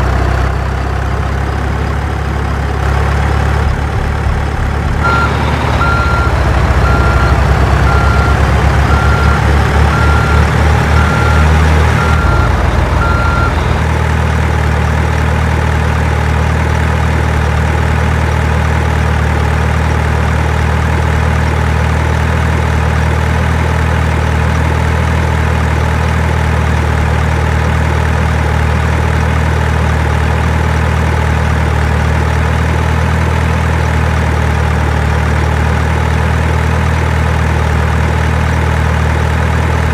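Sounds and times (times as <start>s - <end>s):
truck engine idling: 0.0s - 39.9s
reversing alarm beeping: 5.0s - 13.8s.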